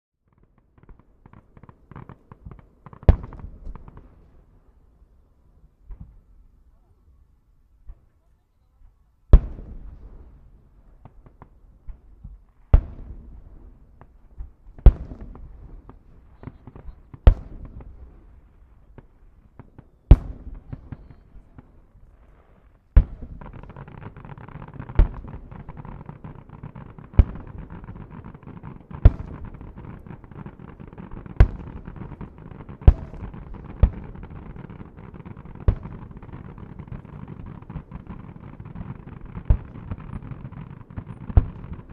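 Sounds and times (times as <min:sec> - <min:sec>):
firework booms: 0:00.3 - 0:04.8, 0:09.3 - 0:41.9
firework crackle: 0:09.3 - 0:41.9.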